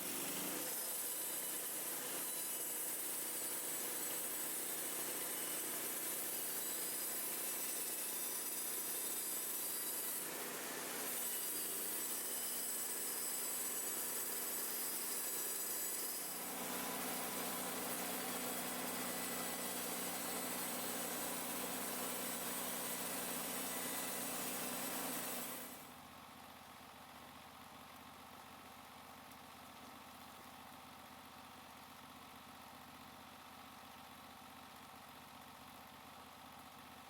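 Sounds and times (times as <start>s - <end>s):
sawmill blade cutting log: 0.0s - 25.9s.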